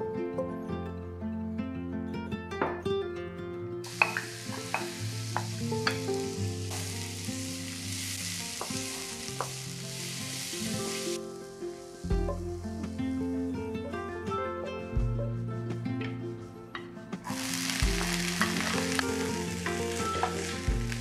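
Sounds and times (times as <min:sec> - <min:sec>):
zucchini sizzling in a frying pan: 0:03.9 - 0:13.5, 0:17.3 - 0:21.0.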